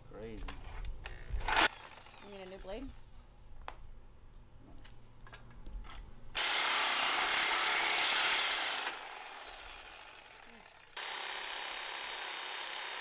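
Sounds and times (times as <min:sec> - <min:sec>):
tool winding down whine: 0:01.4 - 0:02.6, 0:06.4 - 0:13.0
power tool cutting steel: 0:06.4 - 0:13.0.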